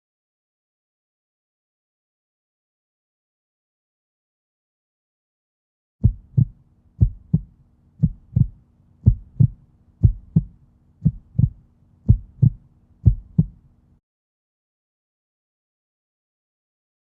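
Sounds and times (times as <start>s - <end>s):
heartbeat double thumps: 6.0s - 13.6s.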